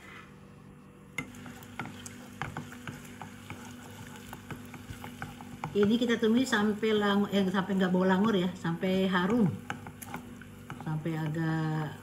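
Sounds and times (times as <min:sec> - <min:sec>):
spatula scraping pan: 0:01.2 - 0:06.0
paste sizzling in hot oil: 0:01.2 - 0:06.6.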